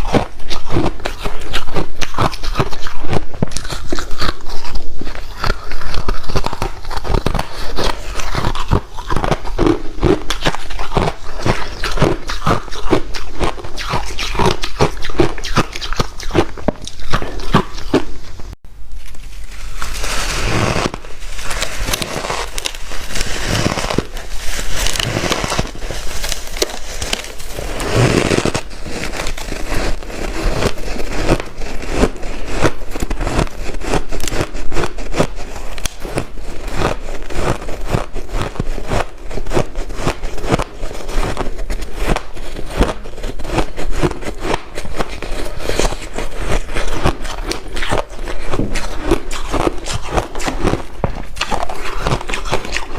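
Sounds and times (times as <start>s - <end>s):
ice crunching being chewed: 0.0s - 18.3s, 19.5s - 52.9s
rasping scrape: 19.4s - 52.9s.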